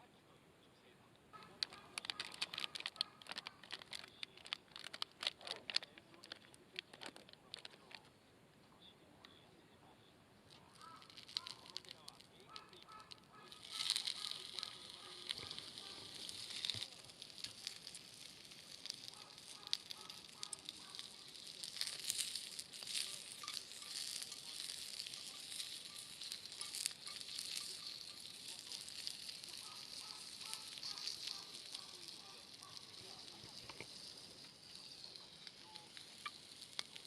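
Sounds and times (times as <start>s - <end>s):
burning wood crackling: 1.2s - 9.4s, 10.4s - 37.0s
food sizzling: 10.5s - 37.0s.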